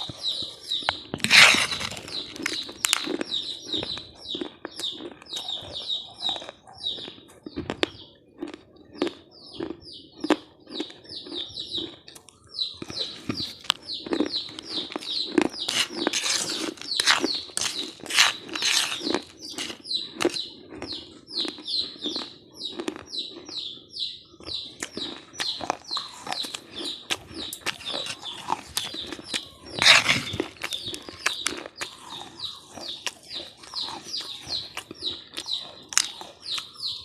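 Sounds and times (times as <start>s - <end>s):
bird chirping rapidly: 0.0s - 8.2s, 8.9s - 37.0s
crunchy snack being chewed: 0.0s - 23.8s, 24.4s - 37.0s.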